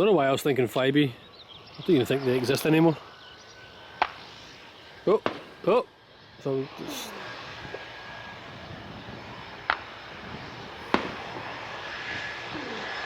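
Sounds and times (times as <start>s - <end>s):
aircraft engines: 0.0s - 13.0s
gunshot-like bangs with echo: 5.1s - 5.5s, 10.9s - 11.3s.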